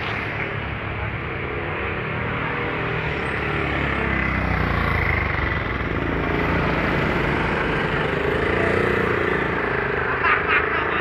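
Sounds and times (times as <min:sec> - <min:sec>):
street traffic engines: 0:00.0 - 0:11.0
small motorcycle engine running: 0:03.7 - 0:11.0.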